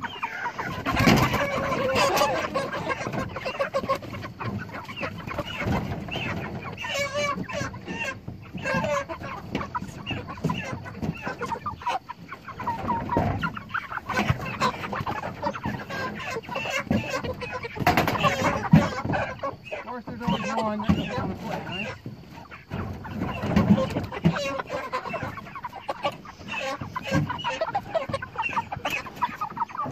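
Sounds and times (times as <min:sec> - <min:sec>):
chickens clucking: 0:00.0 - 0:29.9.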